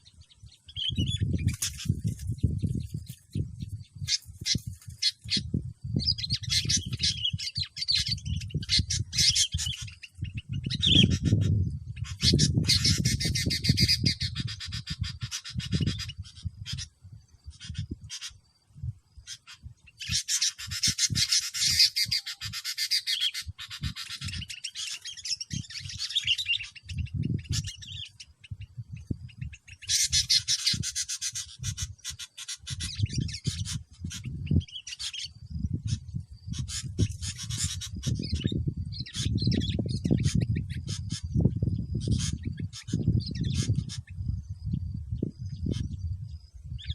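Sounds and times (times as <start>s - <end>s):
low rumbling on microphone: 35.4s - 46.9s.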